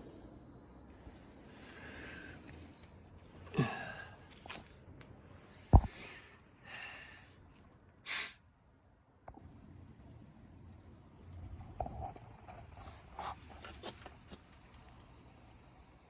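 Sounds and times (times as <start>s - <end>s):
person breathing heavily: 3.5s - 4.3s, 5.8s - 7.4s
person sighing: 3.5s - 4.3s.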